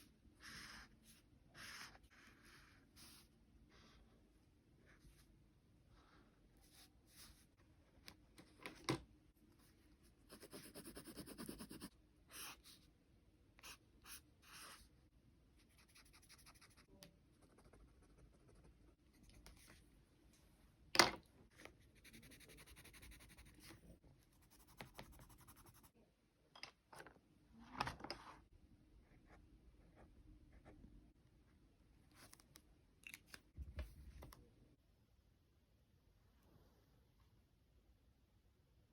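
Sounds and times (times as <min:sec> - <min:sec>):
pen scratching on paper: 0:10.3 - 0:12.6, 0:15.7 - 0:19.6, 0:22.0 - 0:23.8.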